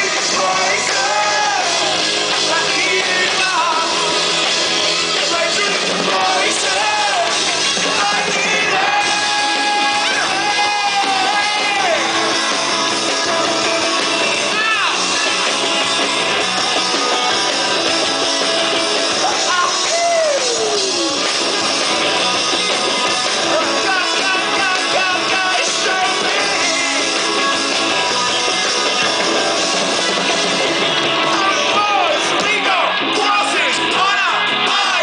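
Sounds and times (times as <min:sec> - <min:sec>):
person singing: 0:00.0 - 0:04.2, 0:05.1 - 0:15.5, 0:23.4 - 0:28.6
electric guitars: 0:00.0 - 0:35.0
live rock band playing: 0:00.0 - 0:35.0.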